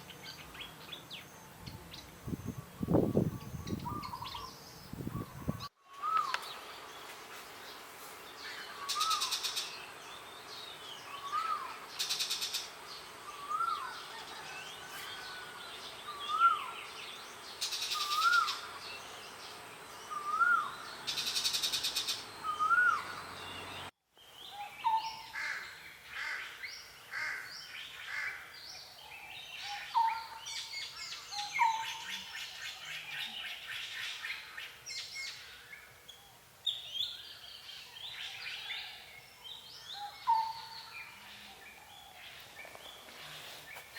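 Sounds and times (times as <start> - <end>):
birds chirping and calling: 0.0 - 23.9, 24.5 - 43.9
bird whistling rising and falling: 22.4 - 23.2.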